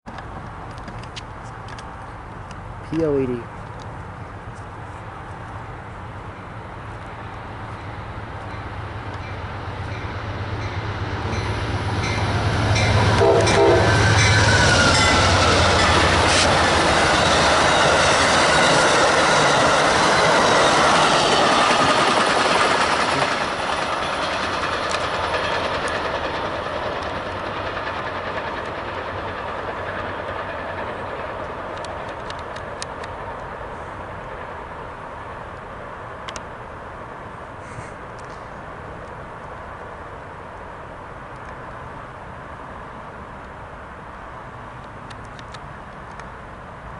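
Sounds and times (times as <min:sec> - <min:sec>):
diesel locomotive engine hum: 0:00.1 - 0:46.9
rush of passing train cars: 0:00.1 - 0:46.9
train wheel clicks: 0:10.6 - 0:33.5.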